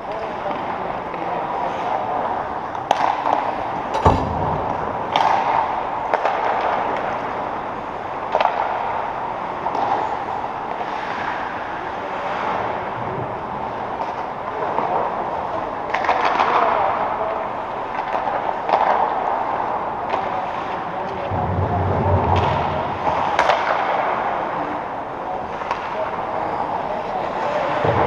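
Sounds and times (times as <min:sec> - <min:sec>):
sticks and puck knocking: 0:02.8 - 0:07.2.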